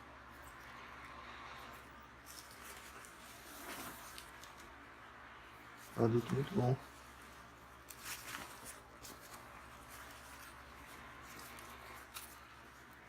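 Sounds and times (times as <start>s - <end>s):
faint steady hum: 0.0s - 13.0s
jacket rustling and scuffing: 2.2s - 4.6s.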